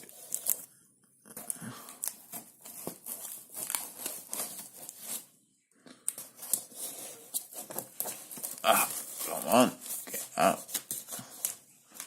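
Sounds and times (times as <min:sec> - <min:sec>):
packaging crinkling and ripping: 0:00.0 - 0:00.7, 0:01.4 - 0:05.2.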